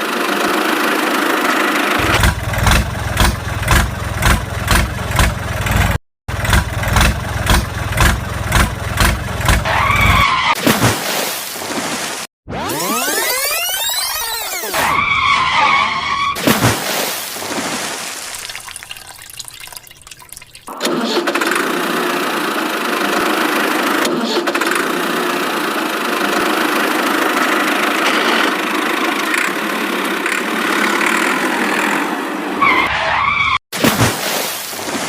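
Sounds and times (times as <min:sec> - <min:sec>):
vehicle engine running: 0:00.0 - 0:10.1, 0:21.5 - 0:24.1, 0:24.7 - 0:32.1
short warbling tone: 0:12.5 - 0:14.8.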